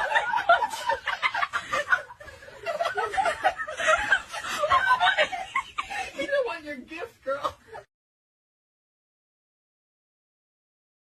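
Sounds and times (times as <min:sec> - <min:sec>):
person laughing: 0:00.0 - 0:06.4.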